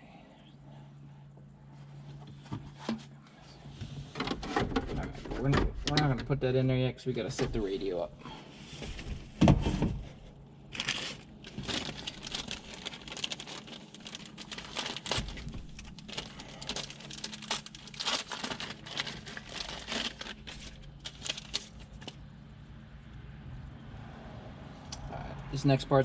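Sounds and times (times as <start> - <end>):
plastic packaging crinkling: 10.7 - 22.2.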